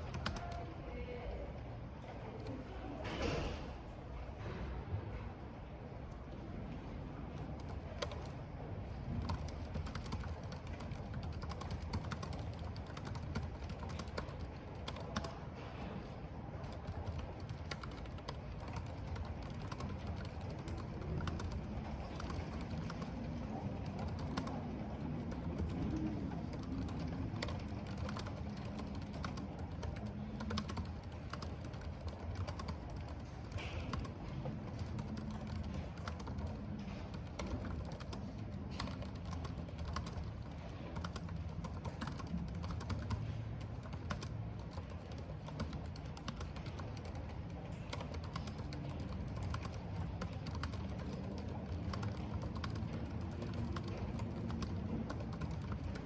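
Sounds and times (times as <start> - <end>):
typing on computer keyboard: 0.0 - 0.7, 7.3 - 56.0.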